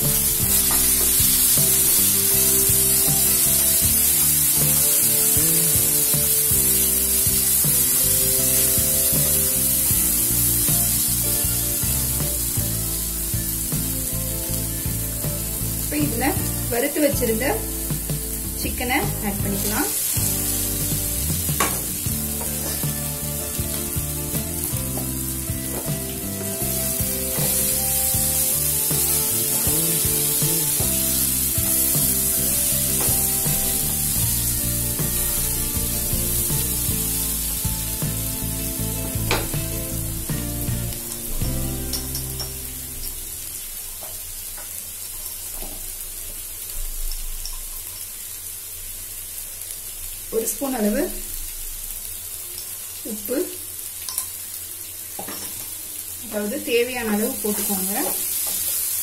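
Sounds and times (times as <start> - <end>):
background music: 0.0 - 43.8
food sizzling in a pan: 0.0 - 59.0.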